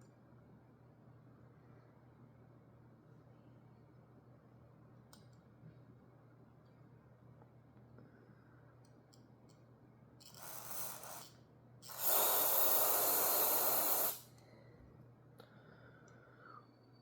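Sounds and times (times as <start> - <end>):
aerosol can spraying: 11.9 - 14.3.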